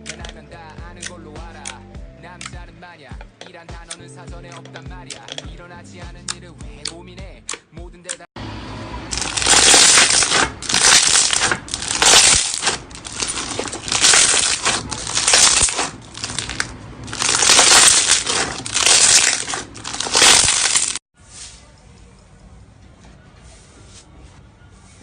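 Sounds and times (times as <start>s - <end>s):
slime being squeezed by hand: 9.2s - 21.0s.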